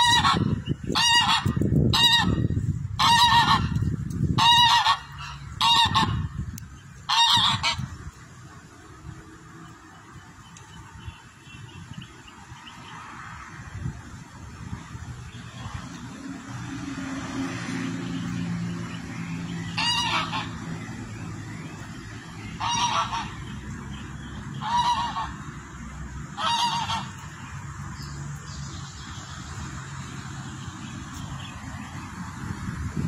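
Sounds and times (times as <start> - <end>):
bird honking: 0.0 - 2.4, 3.0 - 3.8, 4.4 - 6.3, 7.1 - 7.9, 19.7 - 20.6, 22.6 - 23.4, 24.5 - 25.5, 26.4 - 27.2.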